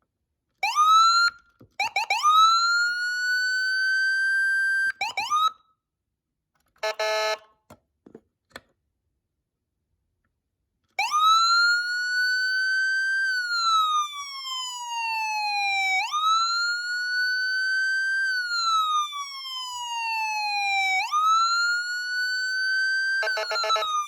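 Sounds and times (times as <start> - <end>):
electronic siren wailing: 0.6 - 5.6, 11.0 - 24.0.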